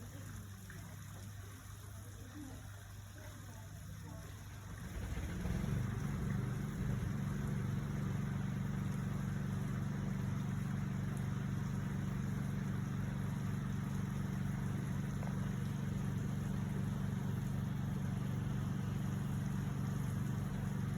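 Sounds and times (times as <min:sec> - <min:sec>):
motor humming: 0:04.8 - 0:20.9.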